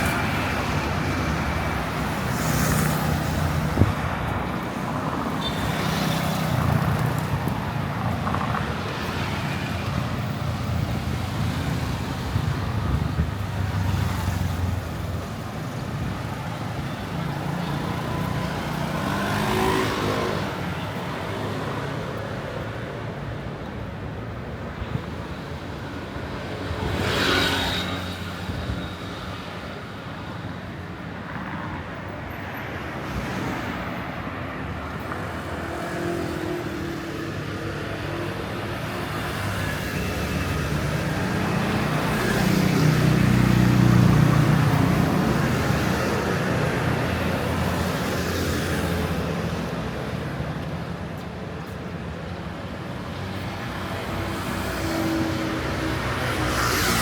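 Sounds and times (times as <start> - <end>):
motor vehicles passing: 17.5 - 22.2, 35.0 - 57.0.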